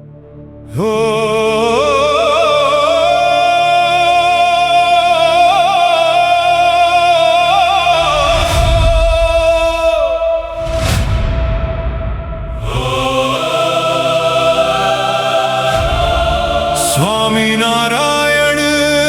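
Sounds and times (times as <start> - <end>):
person singing long ornamented note: 0.7 - 10.7, 12.6 - 19.0
sustained drone: 7.4 - 18.6
deep low rumble: 7.9 - 13.3, 15.8 - 17.5.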